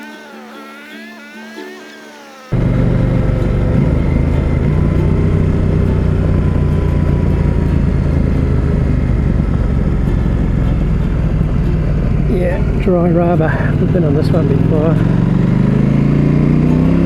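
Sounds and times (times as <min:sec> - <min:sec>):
motorcycle engine running: 0:02.5 - 0:17.0
wind noise: 0:02.6 - 0:15.4.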